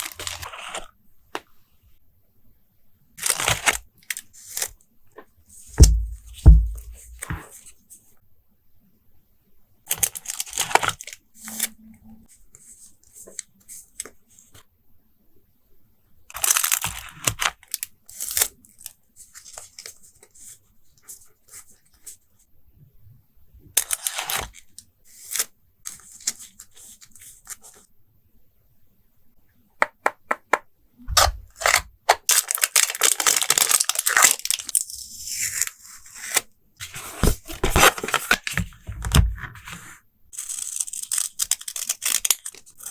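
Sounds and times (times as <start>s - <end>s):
paper crinkling: 31.7s - 34.8s, 36.8s - 42.9s.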